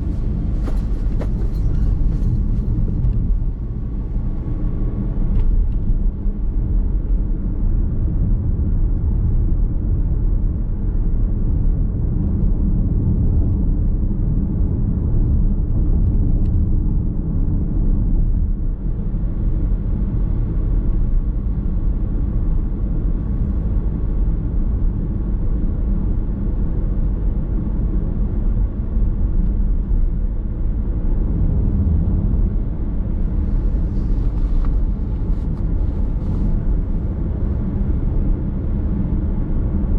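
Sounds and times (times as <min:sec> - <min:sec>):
car engine: 0:00.0 - 0:06.6
tyre and road noise: 0:00.0 - 0:39.9.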